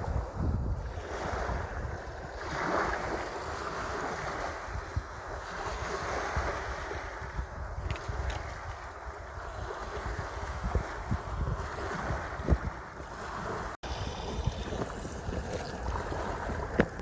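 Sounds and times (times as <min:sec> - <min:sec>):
sea waves breaking: 0:00.0 - 0:17.0
wind on microphone: 0:00.0 - 0:17.0.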